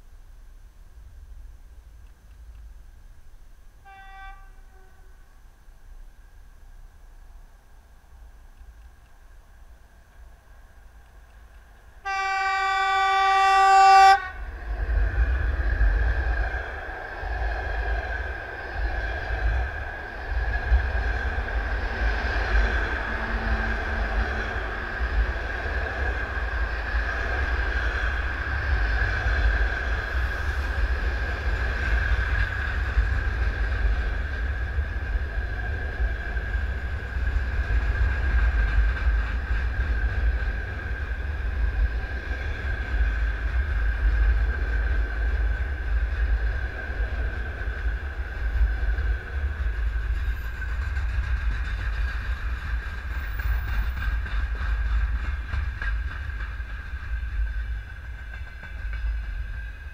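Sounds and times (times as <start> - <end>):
train wheels rumbling on rails: 0.0 - 59.9
locomotive horn blast: 3.8 - 5.1, 12.0 - 14.4.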